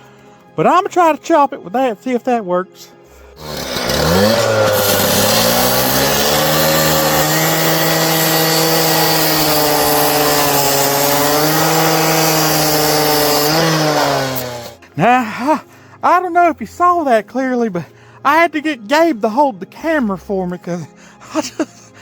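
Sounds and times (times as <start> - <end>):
concrete saw cutting metal: 3.2 - 14.9.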